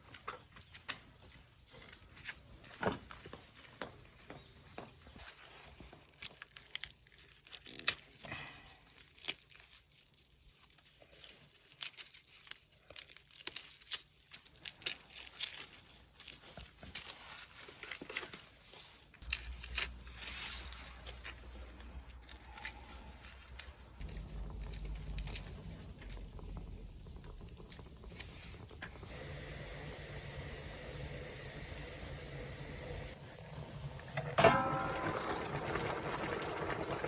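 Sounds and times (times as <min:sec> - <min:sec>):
paper tearing and crinkling: 0:05.8 - 0:26.4.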